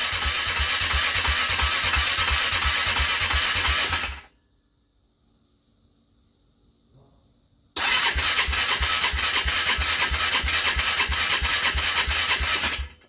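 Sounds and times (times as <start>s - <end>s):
engine turning over on starter: 0.0s - 4.3s, 7.8s - 13.0s.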